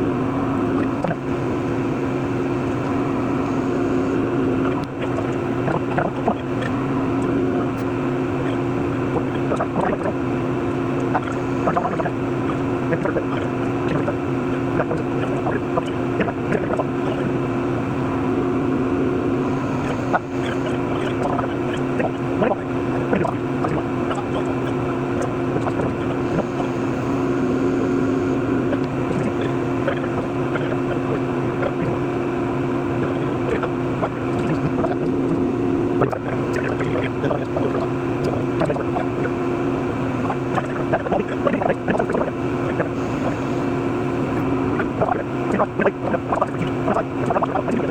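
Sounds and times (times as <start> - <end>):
lathe machine hum: 0.0 - 47.9.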